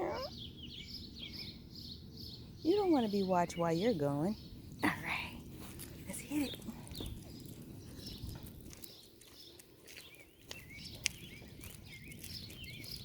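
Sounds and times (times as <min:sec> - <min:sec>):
birds chirping: 0:00.0 - 0:05.5, 0:06.1 - 0:13.0
footsteps in grass: 0:05.4 - 0:13.0.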